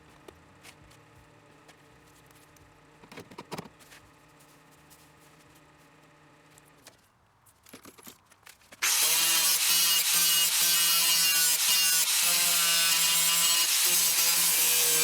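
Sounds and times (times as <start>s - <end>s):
power tool whining: 8.8s - 15.0s.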